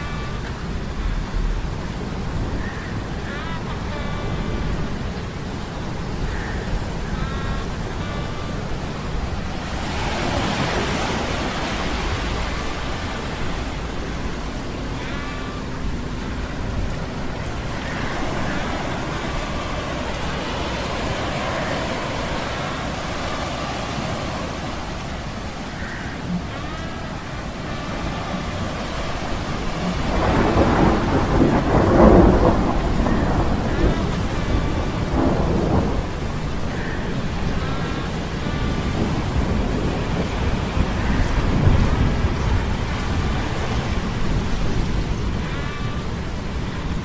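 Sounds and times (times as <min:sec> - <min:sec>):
steady rain: 0:00.0 - 0:47.0
rolling thunder: 0:24.1 - 0:47.0.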